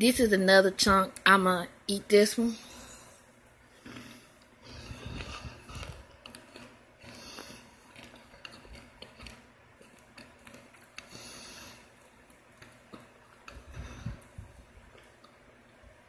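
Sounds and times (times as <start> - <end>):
biting and chewing crunchy chunk: 3.8 - 15.4.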